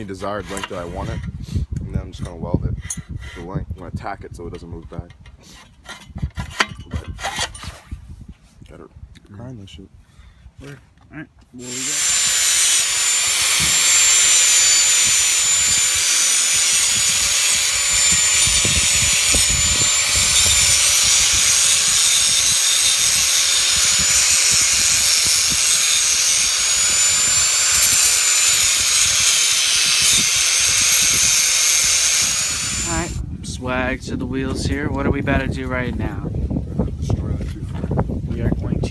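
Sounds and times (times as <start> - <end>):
power grinder grinding metal: 11.6 - 33.2.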